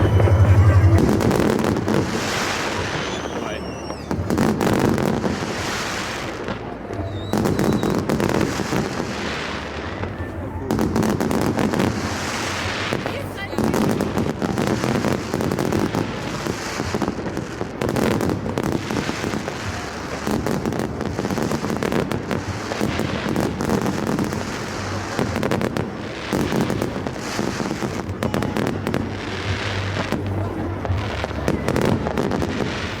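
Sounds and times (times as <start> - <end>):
low rumble: 0.0 - 3.1
fireworks bangs and crackles: 0.0 - 33.0.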